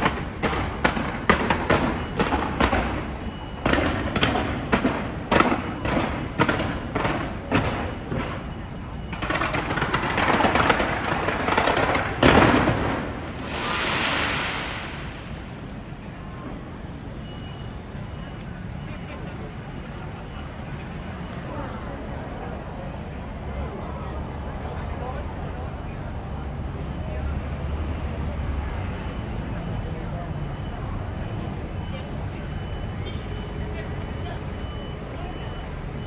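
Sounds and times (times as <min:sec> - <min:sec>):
fireworks bangs: 0:00.0 - 0:16.0
fireworks crackling: 0:00.0 - 0:16.3.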